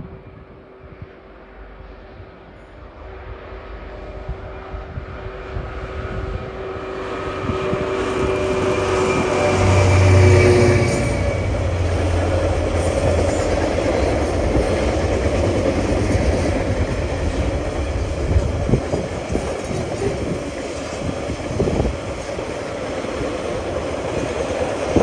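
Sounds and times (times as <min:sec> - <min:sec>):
freight train rolling past: 0:00.0 - 0:25.0
locomotive engine: 0:05.2 - 0:25.0.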